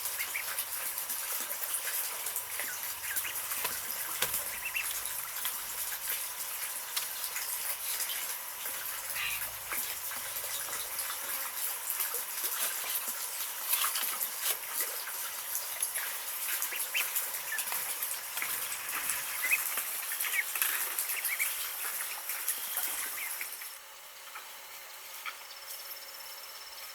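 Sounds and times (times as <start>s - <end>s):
ducklings peeping: 0.0s - 25.7s.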